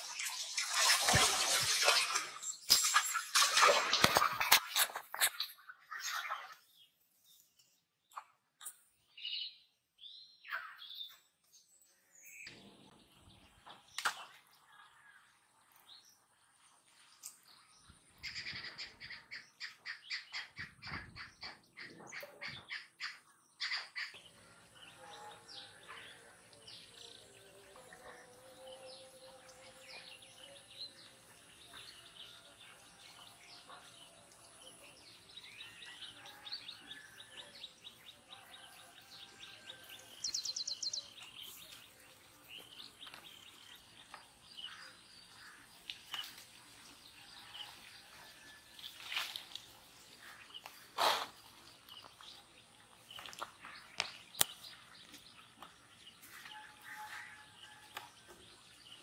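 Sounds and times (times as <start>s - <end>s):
birds chirping and calling: 17.2s - 47.8s.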